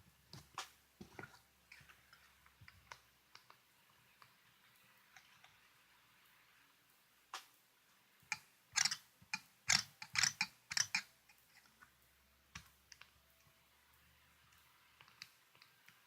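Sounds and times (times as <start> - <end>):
plastic parts clicking: 8.3 - 11.9.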